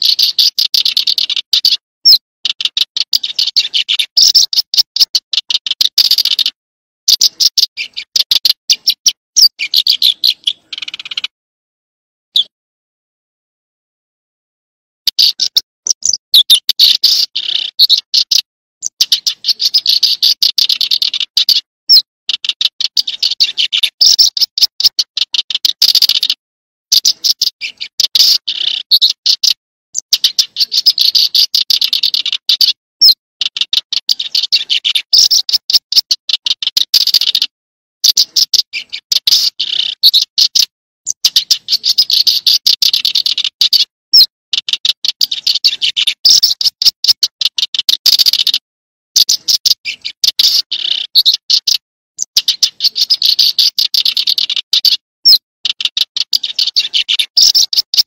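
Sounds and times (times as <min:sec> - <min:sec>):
bird high chipping calls: 0:00.0 - 0:11.3, 0:15.1 - 0:48.6, 0:49.2 - 0:58.0.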